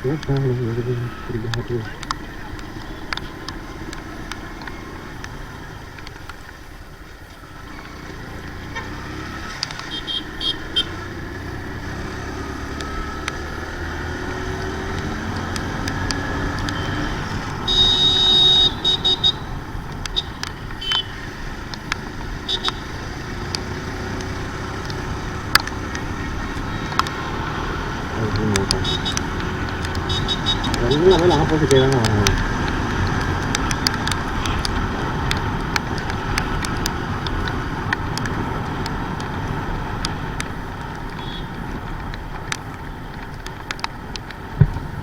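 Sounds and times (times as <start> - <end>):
motorcycle engine running: 0.0 - 6.7, 7.3 - 45.0
road noise: 0.0 - 45.0
vehicle horns tooting: 9.8 - 11.1, 16.6 - 21.3, 22.4 - 23.0, 26.2 - 32.3, 34.2 - 34.9, 41.1 - 41.6.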